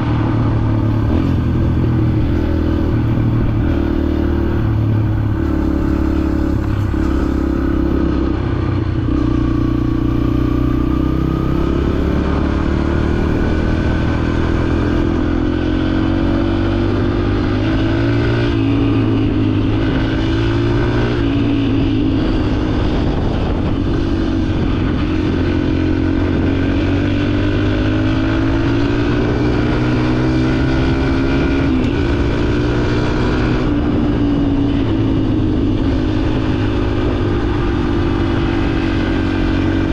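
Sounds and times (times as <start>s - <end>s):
dirt bike engine revving: 0.0s - 8.3s.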